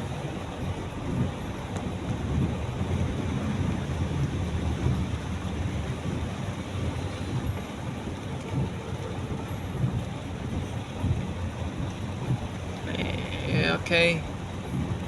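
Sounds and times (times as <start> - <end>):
car road rumble: 0.0 - 15.0
heavy rain on a car: 0.0 - 15.0.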